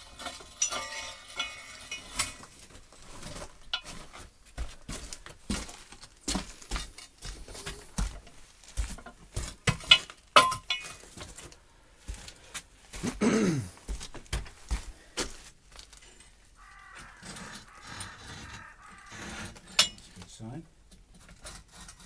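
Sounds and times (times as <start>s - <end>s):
knocks and scrapes on timber: 16.8s - 20.3s, 21.0s - 22.0s.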